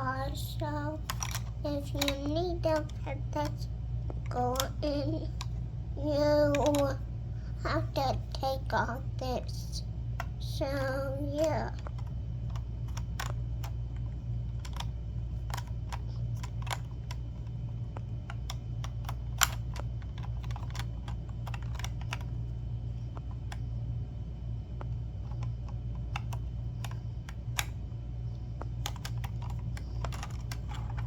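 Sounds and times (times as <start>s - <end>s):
steady low hum: 0.0s - 31.0s
plastic pieces clicking and clattering: 1.0s - 3.7s, 14.6s - 17.5s, 18.2s - 22.4s, 28.8s - 31.0s.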